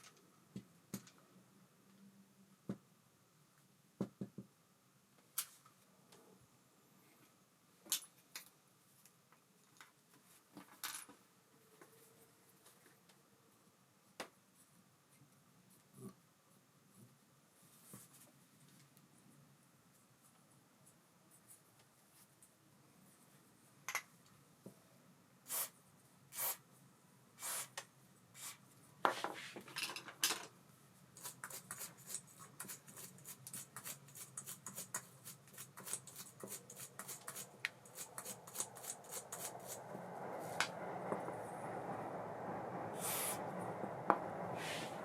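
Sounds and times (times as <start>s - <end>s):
rushing sound: 36.8s - 45.0s.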